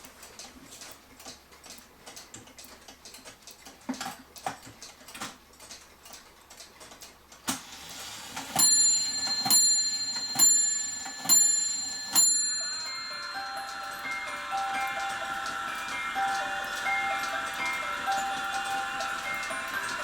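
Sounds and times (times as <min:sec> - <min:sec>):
mechanical clock ticking: 0:00.0 - 0:07.6, 0:08.4 - 0:20.0
clock strike train click: 0:07.5 - 0:20.0
clock bell striking: 0:08.4 - 0:20.0.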